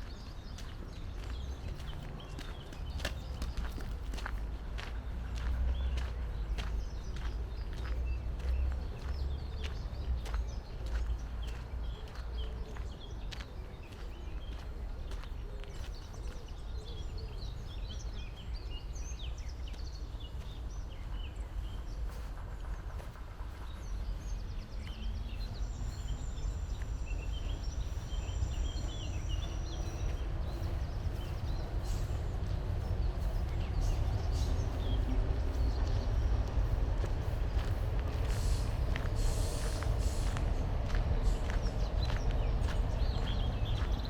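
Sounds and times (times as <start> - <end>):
small birds chirping: 0.0 - 44.0
low rumble: 20.4 - 44.0.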